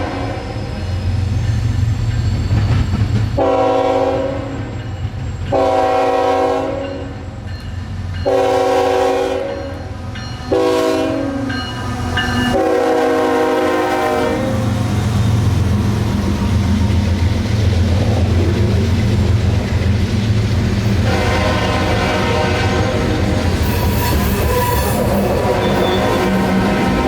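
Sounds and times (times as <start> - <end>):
locomotive air horn blasts: 0.0 - 0.5, 3.4 - 4.8, 5.5 - 7.1, 8.3 - 9.8, 10.5 - 11.5, 12.5 - 14.6, 21.0 - 23.4, 25.3 - 27.0.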